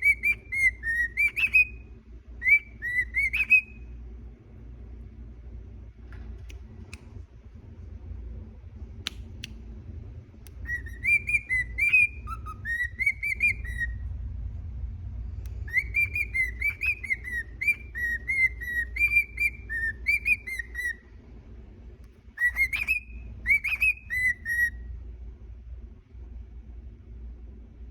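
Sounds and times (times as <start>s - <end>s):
cockatiel whistling: 0.0s - 3.9s, 10.5s - 14.1s, 15.6s - 21.0s, 22.3s - 24.9s.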